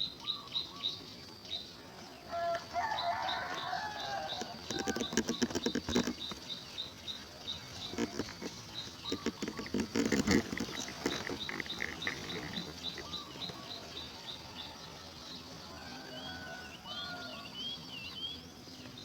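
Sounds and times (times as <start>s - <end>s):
small birds chirping: 0.0s - 19.0s
sharp rustling clicks: 3.3s - 6.7s, 7.5s - 13.7s
bird warbling: 7.8s - 13.9s.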